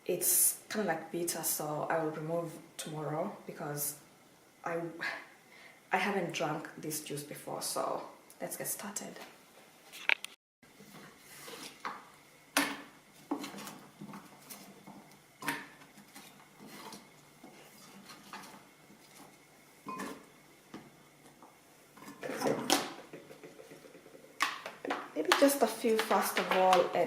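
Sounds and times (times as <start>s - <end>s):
kitchen knocks and clatters: 19.9s - 20.3s, 22.0s - 27.0s.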